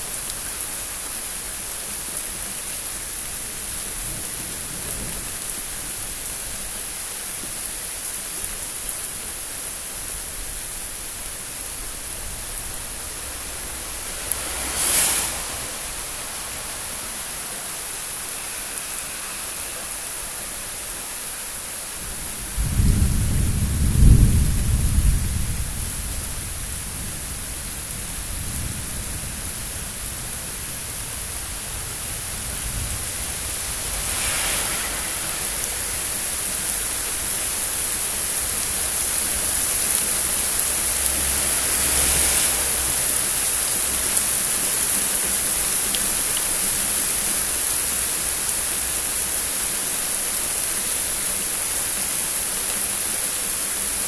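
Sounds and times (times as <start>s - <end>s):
steady rain hiss: 0.0s - 54.0s
thunder rumbling: 11.7s - 17.9s, 22.0s - 39.7s.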